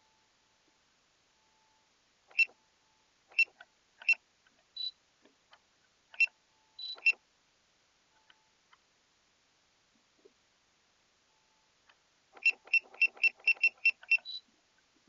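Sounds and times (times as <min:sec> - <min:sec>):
short high-pitched beeps: 0:04.8 - 0:05.0, 0:06.2 - 0:07.2, 0:12.4 - 0:14.5.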